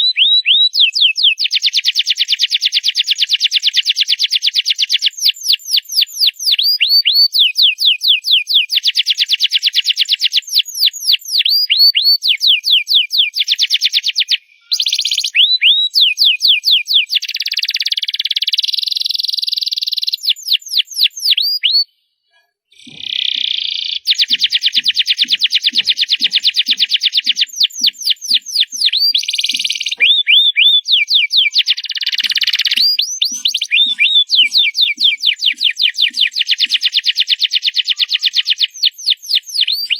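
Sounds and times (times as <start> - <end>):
canary singing trills: 4.4 - 21.9, 22.7 - 39.9.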